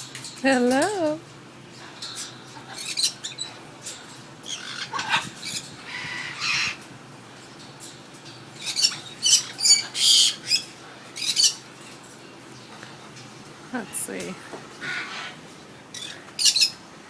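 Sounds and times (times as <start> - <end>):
parrots squawking: 2.6 - 3.6, 4.4 - 6.8, 8.6 - 11.6, 14.8 - 16.8.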